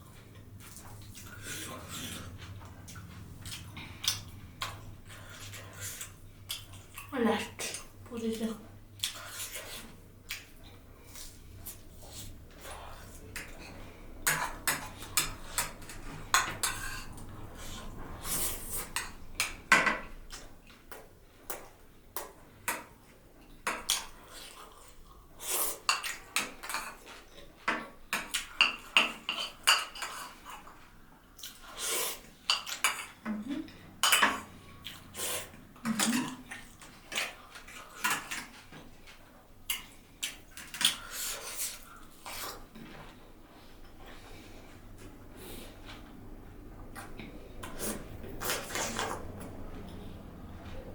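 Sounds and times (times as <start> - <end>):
chewing and mouth sounds: 0.1 - 8.0, 9.0 - 19.6, 28.2 - 46.2.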